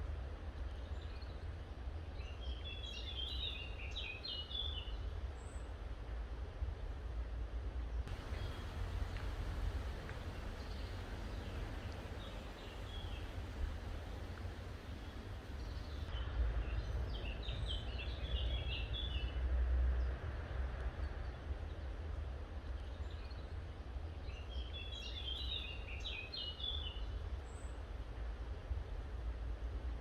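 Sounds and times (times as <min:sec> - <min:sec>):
small bird chirping: 0:08.1 - 0:16.1
steady low rumble: 0:08.1 - 0:16.6.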